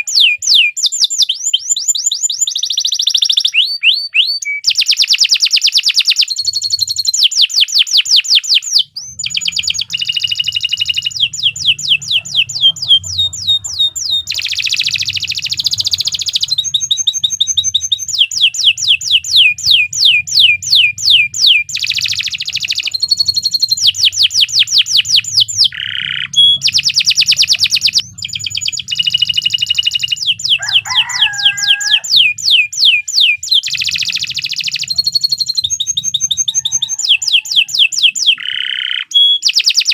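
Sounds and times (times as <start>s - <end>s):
canary singing trills: 0.0s - 39.9s
faint low hum: 8.9s - 31.3s.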